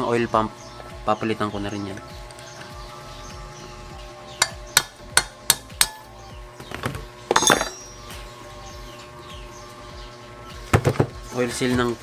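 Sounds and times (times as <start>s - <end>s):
metal clattering clink: 7.3s - 7.8s
metal tool knocking on metal: 7.3s - 7.8s.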